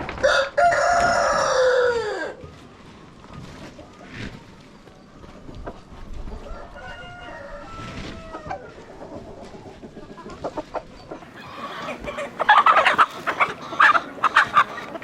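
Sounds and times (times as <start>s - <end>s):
chickens clucking: 0.0s - 15.0s
rooster crowing: 0.2s - 2.4s, 6.4s - 8.7s.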